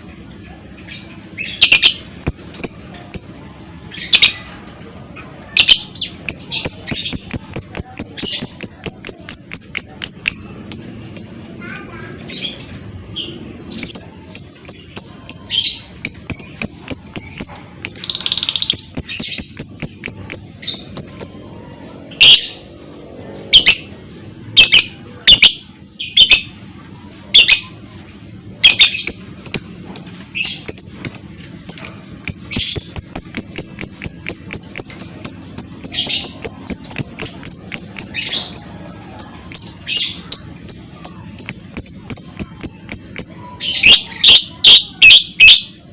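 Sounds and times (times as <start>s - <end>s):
lovebird chirping: 0.9s - 4.5s, 5.5s - 11.8s, 13.2s - 21.4s, 24.6s - 26.6s, 28.6s - 45.8s.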